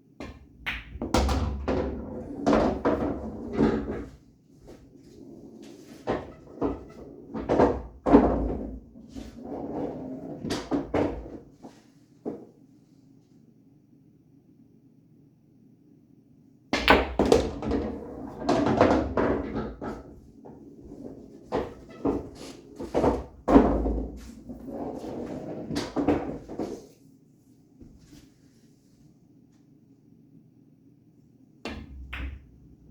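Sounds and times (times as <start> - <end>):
pool balls clacking: 0.2 - 4.2, 5.0 - 11.4, 16.8 - 26.8, 31.6 - 32.9
ball rolling rumble: 1.0 - 4.2, 4.8 - 11.4, 17.2 - 26.8.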